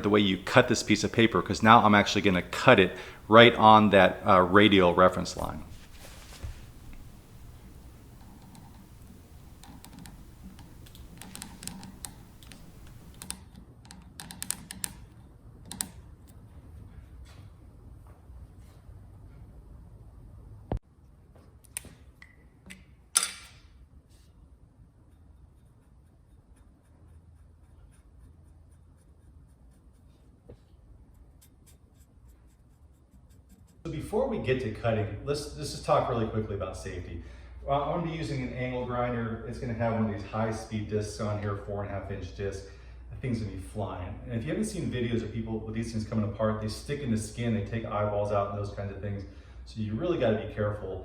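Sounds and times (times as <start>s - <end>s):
paper scratching and ticking: 0.0s - 13.3s
low room hum: 0.0s - 13.4s.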